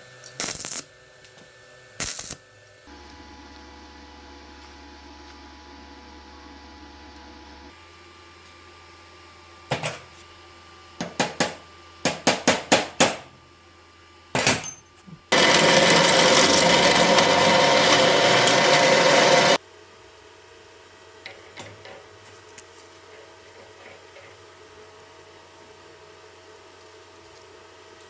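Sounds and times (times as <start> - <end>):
power tool running: 15.3 - 19.6.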